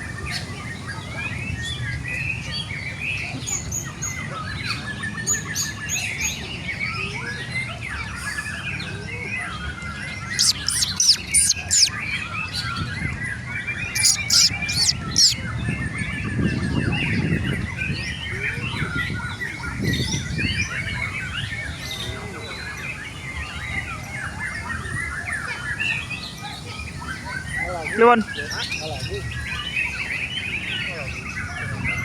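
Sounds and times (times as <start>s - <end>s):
chorus of songbirds: 0.0s - 32.0s
songbird singing: 9.8s - 15.8s.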